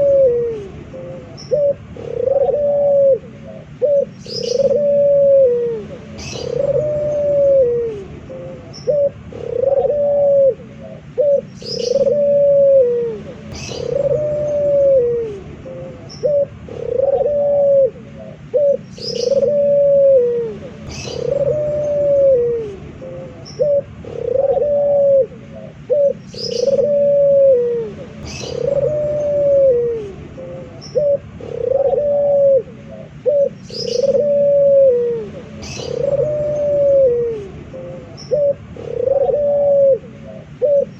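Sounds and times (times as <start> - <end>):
dove cooing: 0.0 - 40.9
small bird chirping: 3.6 - 4.8, 5.9 - 9.8, 10.9 - 12.4, 13.2 - 17.3, 18.2 - 19.7, 20.6 - 24.5, 25.6 - 27.0, 28.0 - 31.7, 33.0 - 34.4, 35.3 - 39.4.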